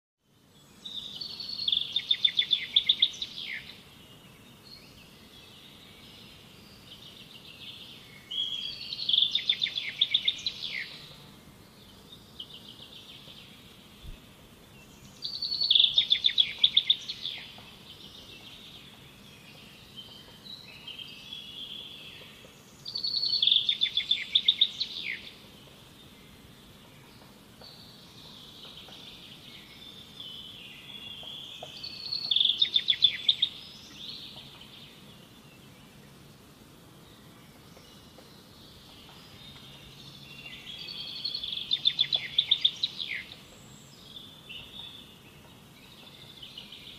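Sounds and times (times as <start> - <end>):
bird singing rapid chirps: 27.7 - 35.7, 37.6 - 46.9
soft bird calls: 37.2 - 46.9.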